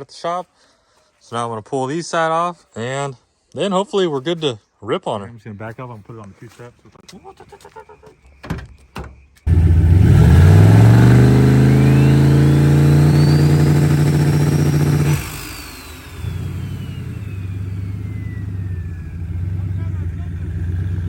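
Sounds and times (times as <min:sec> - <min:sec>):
car engine revving: 0:09.5 - 0:21.0
turbo whine: 0:09.5 - 0:21.0.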